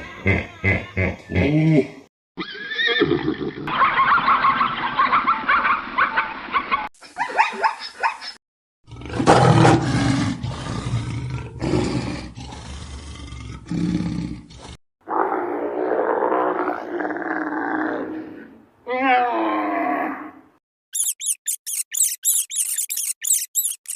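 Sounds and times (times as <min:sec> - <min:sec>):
animal calls: 0:21.0 - 0:23.9.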